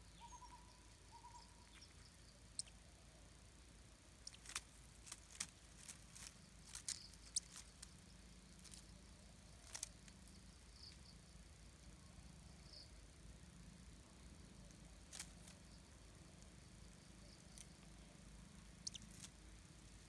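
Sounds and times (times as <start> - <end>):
low steady hum: 0.0 - 20.0
twigs clicking and crackling: 1.6 - 2.8, 4.2 - 10.4, 15.0 - 15.7, 17.3 - 17.8, 18.6 - 19.4.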